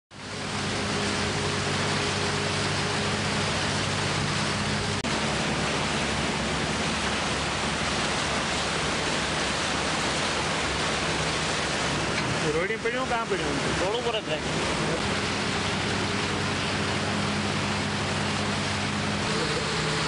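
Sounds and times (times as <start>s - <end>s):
heavy rain: 0.1s - 20.0s
wind: 0.1s - 20.0s
low hum: 14.4s - 20.0s.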